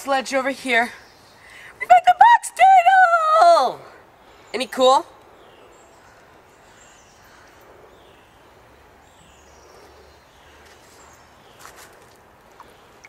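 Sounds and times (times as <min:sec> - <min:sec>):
bird chirping: 0:04.2 - 0:13.0.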